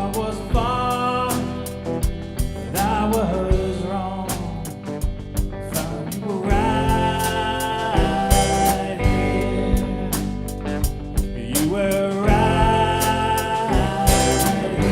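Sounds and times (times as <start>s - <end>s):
drums steady beat: 0.0s - 14.9s
guitar: 0.0s - 14.9s
person singing long notes: 6.2s - 10.4s, 11.4s - 14.9s.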